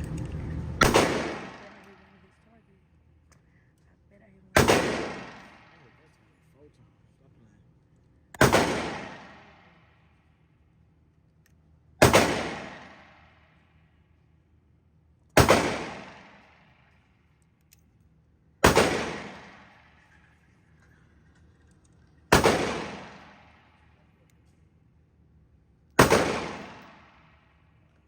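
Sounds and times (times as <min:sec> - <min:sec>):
pistol shots echoing: 0:00.8 - 0:02.2, 0:04.6 - 0:06.1, 0:08.4 - 0:10.0, 0:12.0 - 0:13.5, 0:15.4 - 0:16.9, 0:18.6 - 0:20.2, 0:22.3 - 0:24.0, 0:26.0 - 0:27.5.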